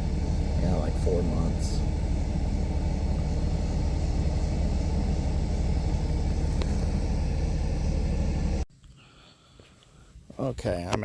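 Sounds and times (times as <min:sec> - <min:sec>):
car interior rumble: 0:00.0 - 0:08.7.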